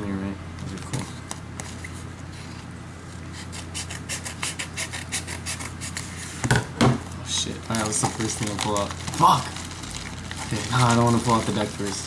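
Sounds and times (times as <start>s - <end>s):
sharp scratching strokes: 3.3s - 6.4s.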